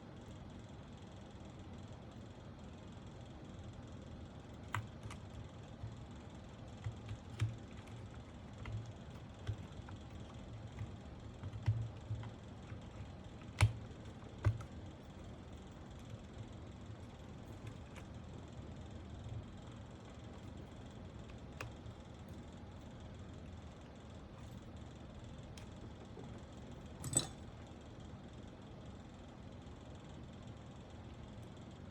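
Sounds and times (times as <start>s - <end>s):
plastic keyboard parts clicking: 6.8s - 14.8s.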